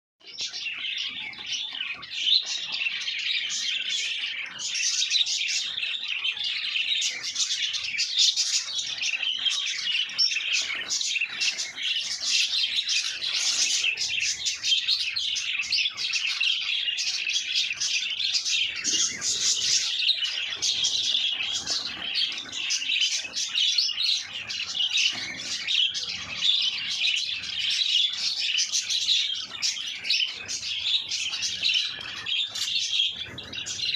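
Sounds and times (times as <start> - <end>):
caged birds chirping: 0.2 - 33.9.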